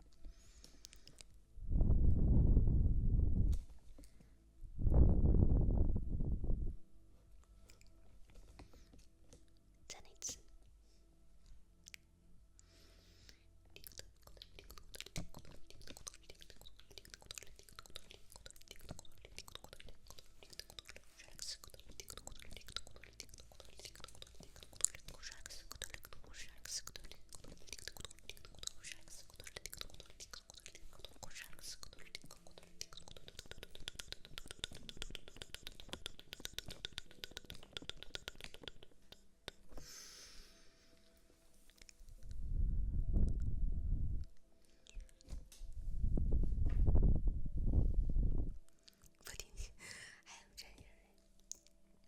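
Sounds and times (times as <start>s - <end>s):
crackling and clicking: 13.8s - 39.7s.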